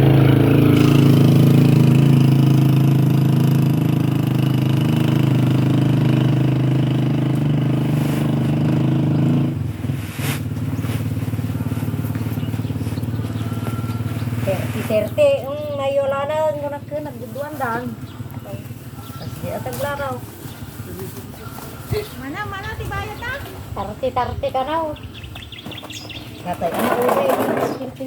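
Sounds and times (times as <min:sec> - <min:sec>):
small engine running: 0:00.0 - 0:15.1, 0:25.8 - 0:28.0.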